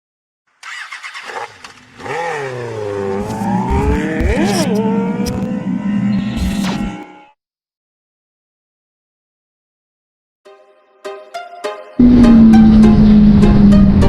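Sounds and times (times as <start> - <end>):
motorcycle engine revving: 0.6 - 6.9, 12.0 - 14.0.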